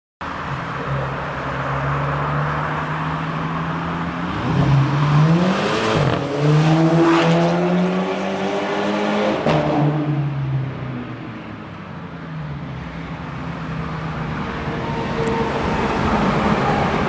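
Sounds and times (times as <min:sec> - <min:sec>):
car engine revving: 0:03.8 - 0:10.1.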